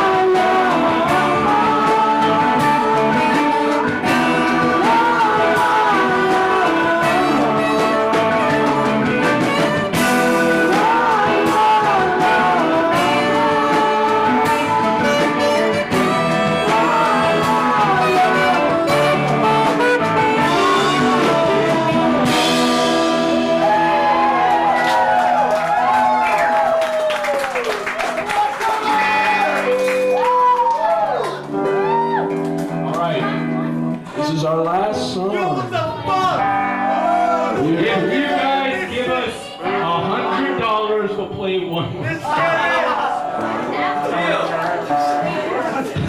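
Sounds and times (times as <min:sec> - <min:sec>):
person singing lead melody: 0:00.0 - 0:25.5, 0:33.2 - 0:41.3
guitar: 0:00.0 - 0:46.0
live band playing: 0:00.0 - 0:46.0.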